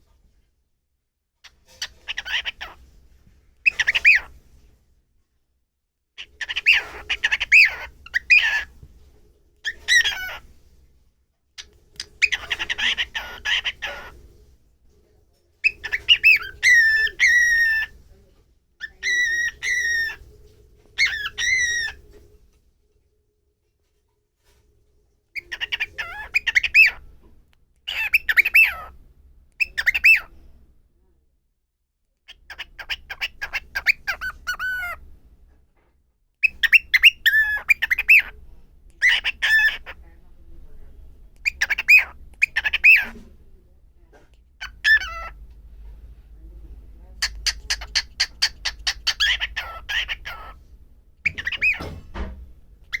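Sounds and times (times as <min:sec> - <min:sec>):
cockatiel chirping: 0:01.4 - 0:02.8, 0:03.6 - 0:04.3, 0:06.2 - 0:08.9, 0:09.6 - 0:10.5, 0:11.6 - 0:14.2, 0:15.6 - 0:18.0, 0:18.8 - 0:20.3, 0:21.0 - 0:22.2, 0:25.4 - 0:27.0, 0:27.9 - 0:29.0, 0:29.6 - 0:30.4, 0:32.3 - 0:35.1, 0:36.4 - 0:38.4, 0:39.0 - 0:40.0, 0:41.4 - 0:43.2, 0:44.6 - 0:45.4, 0:47.2 - 0:50.6, 0:51.2 - 0:52.0.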